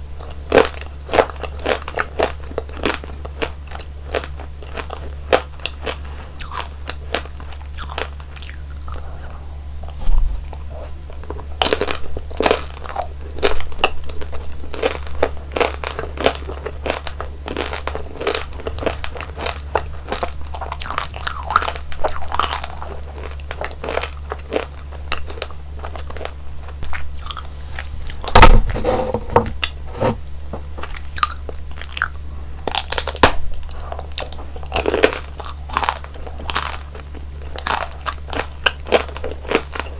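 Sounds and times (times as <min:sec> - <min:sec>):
steady low hum: 0:27.2 - 0:30.9
crunching bites and chewing: 0:32.7 - 0:33.4.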